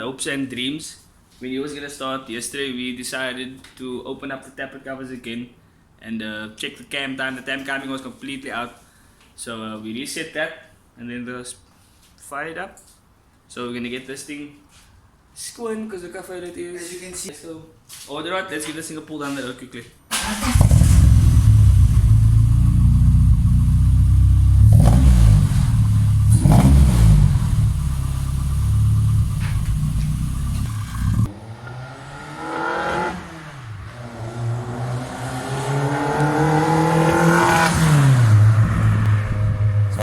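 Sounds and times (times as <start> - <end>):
car engine revving: 20.3 - 40.0.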